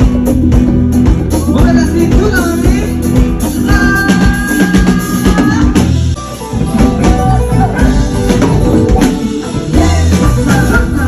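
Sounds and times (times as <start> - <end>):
drum and tambourine beat: 0.0 - 6.1
guitar: 0.0 - 11.0
heavy bass notes: 0.0 - 11.0.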